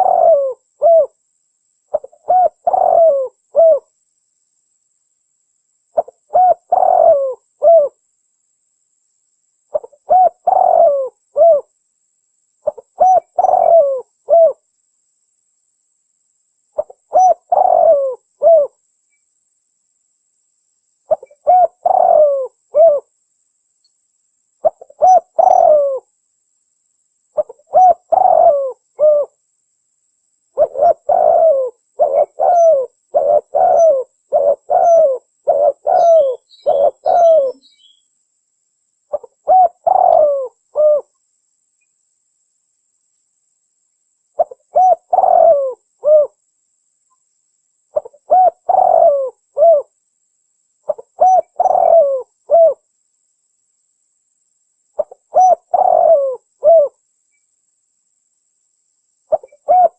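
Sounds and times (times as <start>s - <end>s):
dove cooing: 0.0s - 1.2s, 1.9s - 3.9s, 6.0s - 8.0s, 9.7s - 11.7s, 12.6s - 14.6s, 16.8s - 18.8s, 21.1s - 23.1s, 24.6s - 26.1s, 27.4s - 29.4s, 30.6s - 37.9s, 39.1s - 41.1s, 44.4s - 46.4s, 47.9s - 49.9s, 50.9s - 52.8s, 55.0s - 57.0s, 59.3s - 59.9s
faint high chirps: 31.6s - 38.2s.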